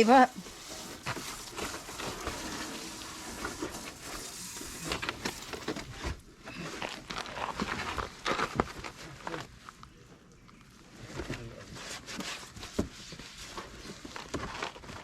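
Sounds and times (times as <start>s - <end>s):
water spraying from hose: 0.0s - 6.0s.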